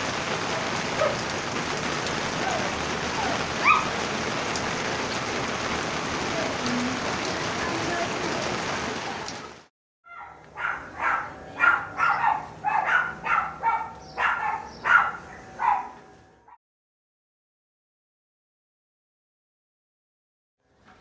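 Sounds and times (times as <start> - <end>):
steady rain: 0.0 - 9.7
dog barking high-pitched: 0.9 - 1.3, 2.4 - 4.0, 10.1 - 16.0.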